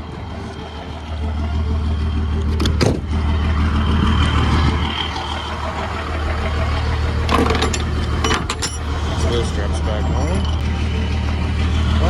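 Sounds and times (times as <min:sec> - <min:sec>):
truck engine idling: 0:00.0 - 0:12.0
sharp metallic knocks: 0:07.2 - 0:09.5.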